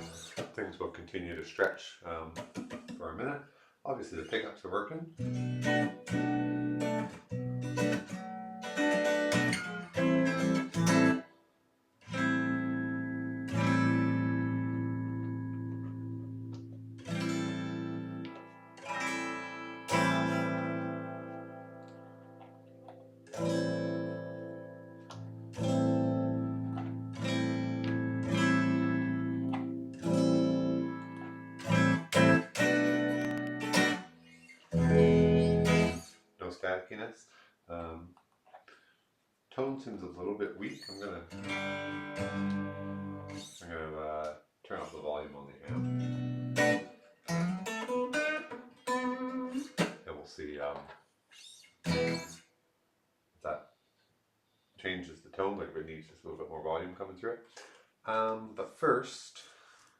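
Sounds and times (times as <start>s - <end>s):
clean electric guitar chords: 12.1s - 34.1s, 41.4s - 43.4s.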